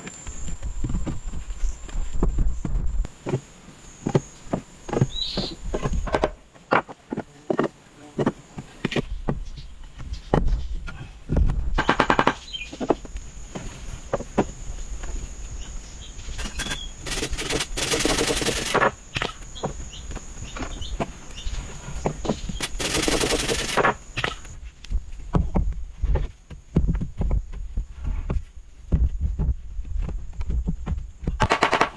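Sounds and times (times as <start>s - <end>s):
rapid rasping strokes: 16.4s - 19.0s, 22.6s - 24.5s.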